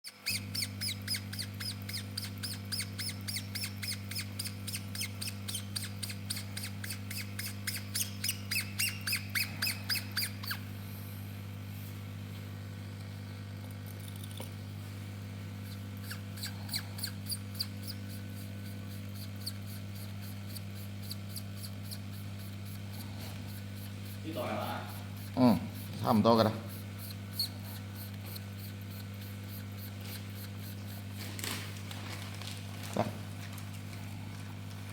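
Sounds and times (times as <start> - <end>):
rhythmic squeaking from rubbing: 0.1 - 10.7, 15.6 - 31.6
steady electrical hum: 0.1 - 34.9.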